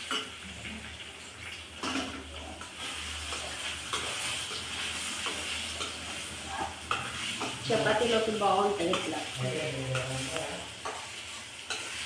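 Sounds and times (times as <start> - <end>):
egg and onion sizzling: 0.0 - 12.0
metal utensils scraping pan: 1.8 - 12.0.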